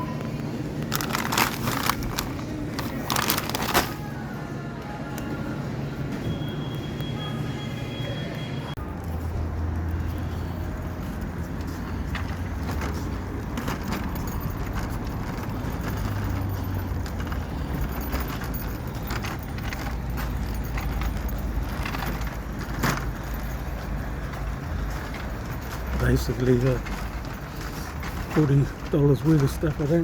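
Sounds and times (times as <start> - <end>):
items being handled: 0.0 - 4.4, 9.8 - 30.0.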